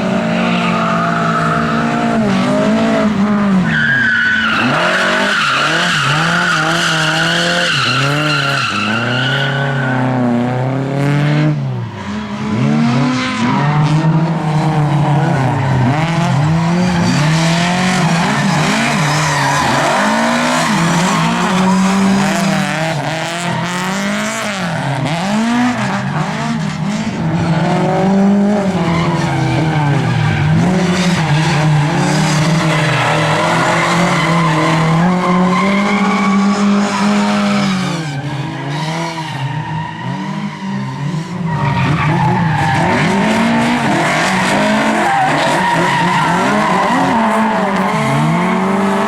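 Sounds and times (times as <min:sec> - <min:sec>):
tyres squealing: 0:00.0 - 0:09.9
race car engine revving: 0:00.0 - 0:49.0.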